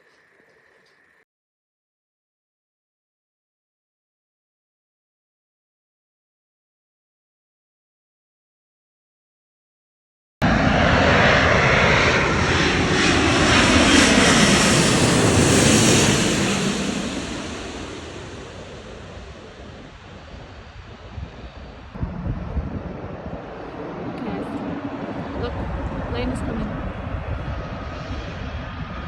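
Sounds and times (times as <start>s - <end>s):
jet airliner engine roar: 10.4s - 29.0s.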